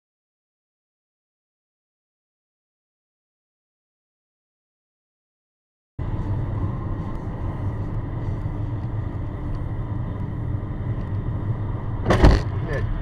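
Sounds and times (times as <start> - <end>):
car interior road and engine noise: 6.0 - 13.0.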